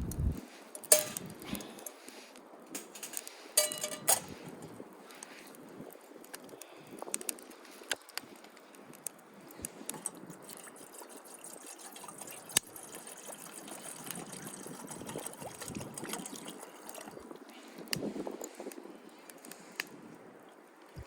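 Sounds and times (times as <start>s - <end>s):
water pouring and trickling: 0.8s - 2.0s, 9.5s - 18.8s.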